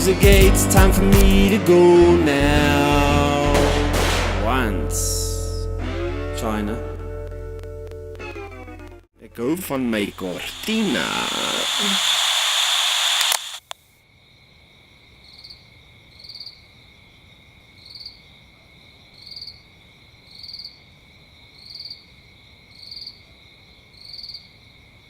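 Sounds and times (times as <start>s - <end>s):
single click: 11.7s - 13.8s.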